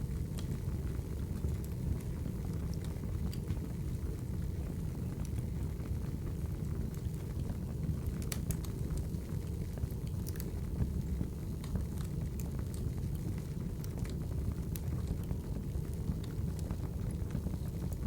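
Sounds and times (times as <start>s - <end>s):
wood fire rumble: 0.0s - 18.0s
fire pops and snaps: 2.5s - 3.6s, 6.9s - 11.0s, 11.6s - 18.0s.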